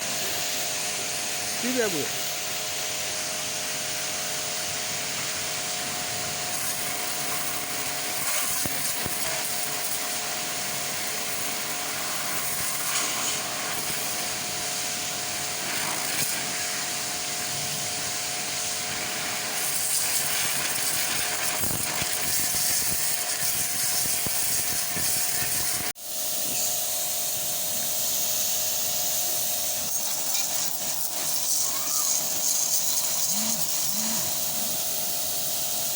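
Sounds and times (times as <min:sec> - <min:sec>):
spraying water hiss: 0:00.0 - 0:35.9
motor hum: 0:29.6 - 0:35.9.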